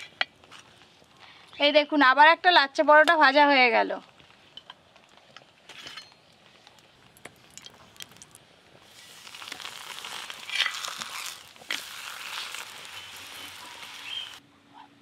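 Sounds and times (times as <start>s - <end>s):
oil sizzling: 6.7s - 14.4s.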